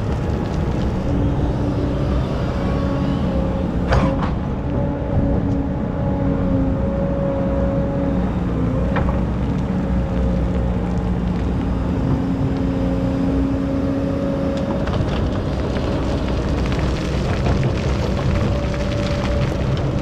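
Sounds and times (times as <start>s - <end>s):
engine whining tone: 0.9s - 9.4s.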